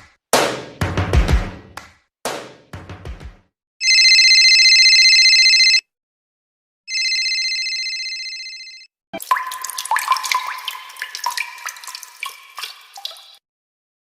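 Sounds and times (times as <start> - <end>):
telephone ringing: 3.8 - 5.8, 6.9 - 8.9.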